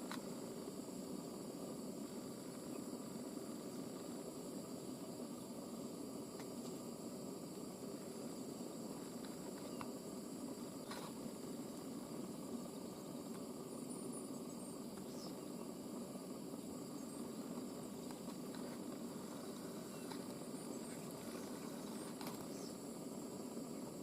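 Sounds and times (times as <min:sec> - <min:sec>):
faint ticks: 0:00.0 - 0:00.4, 0:09.0 - 0:10.0, 0:17.5 - 0:22.8
low background noise: 0:00.0 - 0:24.0.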